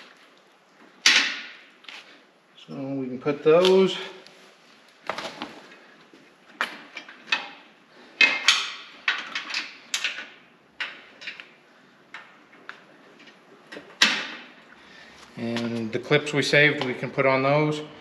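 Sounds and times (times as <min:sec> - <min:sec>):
metal cables clicking and clattering: 0:06.5 - 0:14.6.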